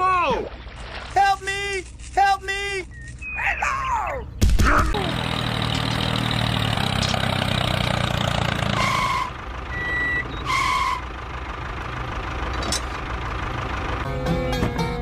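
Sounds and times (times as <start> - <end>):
engine running: 4.3 - 15.0.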